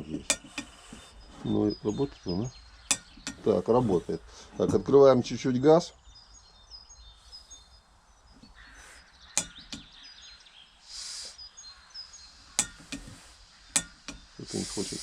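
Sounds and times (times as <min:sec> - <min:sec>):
gas hissing: 0:00.0 - 0:05.0, 0:10.8 - 0:15.0
birds chirping faintly: 0:00.0 - 0:15.0.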